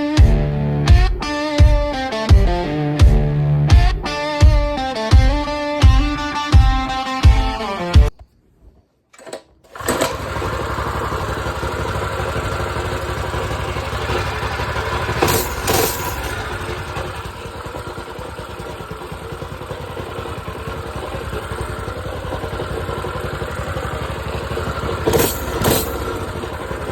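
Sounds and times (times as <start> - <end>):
minibike engine running: 9.2 - 26.9.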